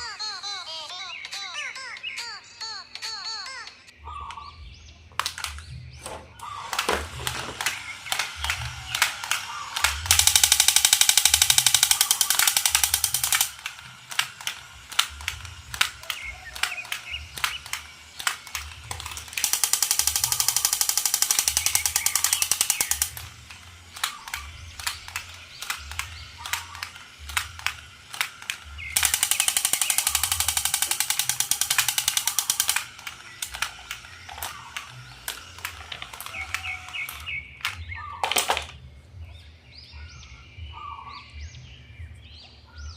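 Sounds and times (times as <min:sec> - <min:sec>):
rapid buzzing rattle: 0:05.2 - 0:38.8.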